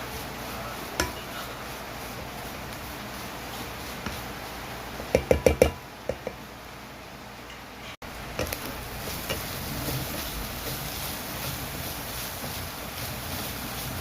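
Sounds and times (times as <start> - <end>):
steady hiss: 0.0 - 7.1, 8.0 - 14.0
utensils knocking on cookware: 1.0 - 1.3, 5.1 - 6.4.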